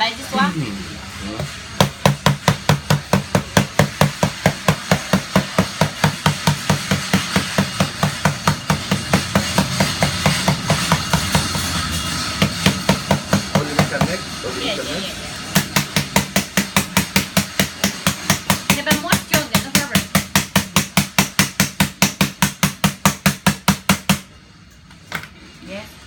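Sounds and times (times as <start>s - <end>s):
hard object knocking on phone screen: 1.4s - 11.6s, 15.5s - 24.3s.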